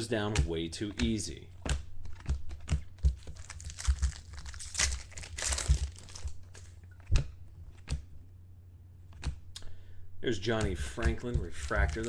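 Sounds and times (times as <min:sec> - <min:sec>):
card pack wrapper tearing: 0:03.2 - 0:06.8, 0:11.6 - 0:12.0
wrapper crinkling: 0:03.2 - 0:06.8, 0:11.6 - 0:12.0
cards clicking together: 0:10.6 - 0:12.0.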